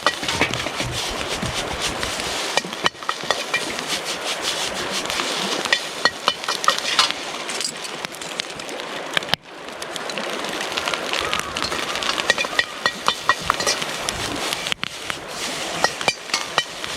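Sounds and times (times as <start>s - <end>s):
steady frying hiss: 0.0s - 7.4s.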